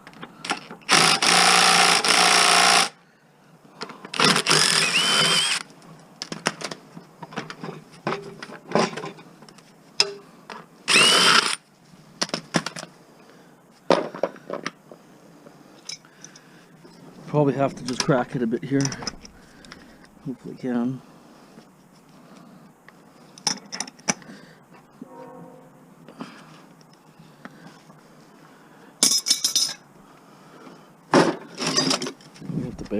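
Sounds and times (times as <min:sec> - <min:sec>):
power drill whining: 0:00.6 - 0:03.0, 0:04.2 - 0:05.7, 0:10.9 - 0:11.6.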